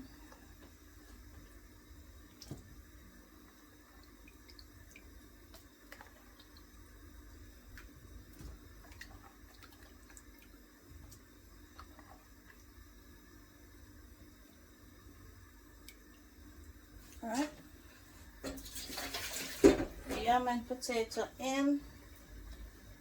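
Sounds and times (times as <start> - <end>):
water dripping: 0.0 - 13.0, 15.4 - 17.7
food plopping into boiling water: 2.3 - 3.0, 18.4 - 20.2.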